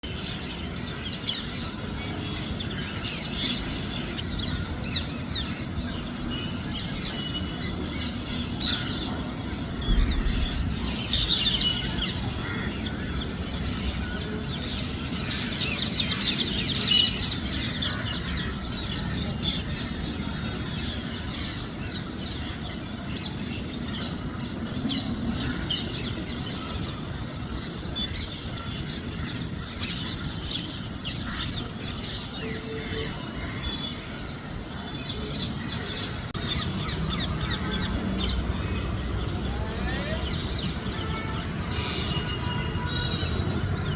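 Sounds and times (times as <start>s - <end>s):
steady high hiss: 0.1s - 36.4s
low thump: 9.8s - 11.9s
low rumble: 9.8s - 12.4s.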